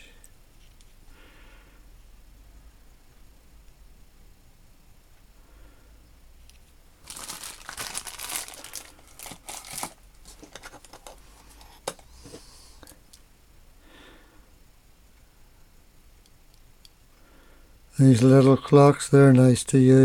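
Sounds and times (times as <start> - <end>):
wrapping crinkling: 7.0 - 11.2.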